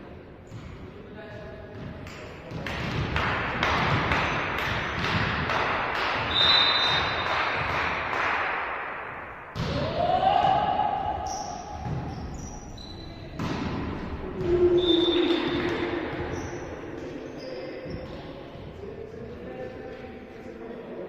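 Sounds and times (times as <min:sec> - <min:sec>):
ball bouncing on indoor court: 0:00.4 - 0:20.1
volleyball hits: 0:01.7 - 0:12.5, 0:13.2 - 0:16.7.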